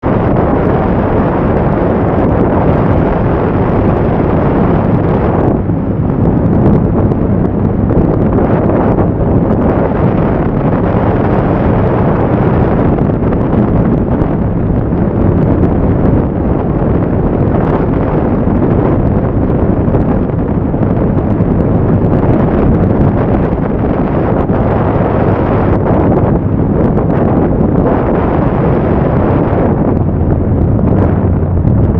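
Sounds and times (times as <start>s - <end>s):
motorcycle engine drone: 0.0s - 31.9s
wind rushing over microphone: 0.0s - 31.9s.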